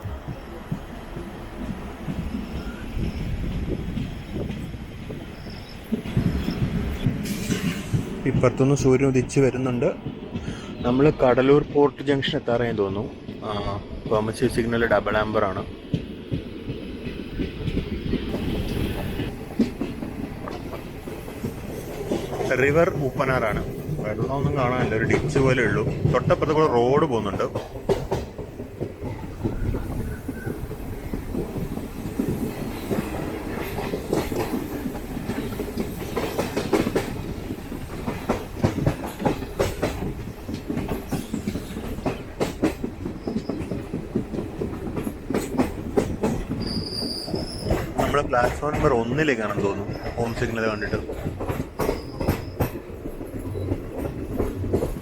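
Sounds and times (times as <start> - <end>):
train rumbling on track: 0.0 - 55.0
wheels clicking over rail joints: 11.6 - 55.0.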